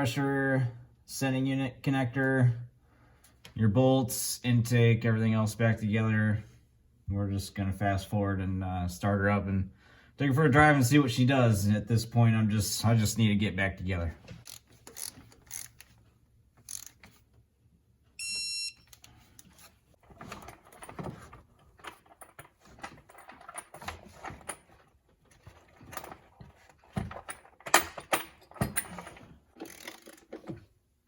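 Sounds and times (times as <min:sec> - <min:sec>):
short electronic beep: 0:18.2 - 0:18.8.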